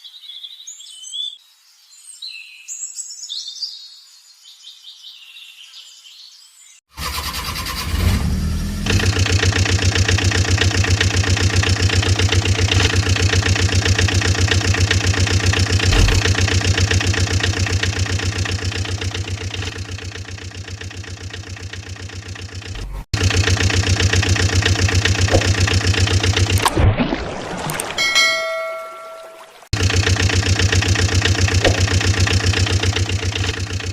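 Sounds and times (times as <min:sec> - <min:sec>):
vehicle engine puttering: 0:06.9 - 0:26.8, 0:29.7 - 0:33.9.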